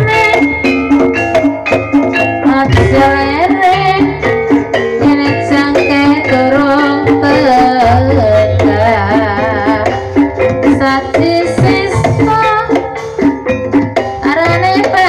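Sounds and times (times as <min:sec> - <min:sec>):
hand drum strokes: 0:00.0 - 0:15.0
person singing with vibrato: 0:02.5 - 0:13.1.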